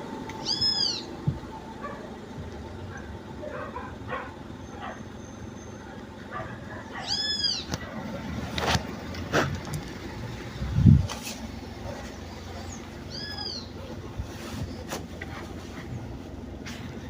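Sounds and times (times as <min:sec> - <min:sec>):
steering box squealing: 0:00.4 - 0:01.3.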